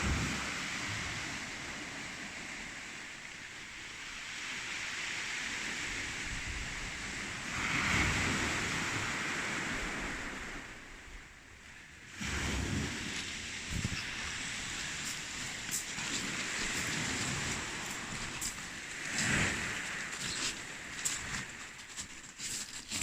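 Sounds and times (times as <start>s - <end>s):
sea surf washing onto beach: 0.0s - 23.0s
wind buffeting microphone: 12.2s - 21.7s.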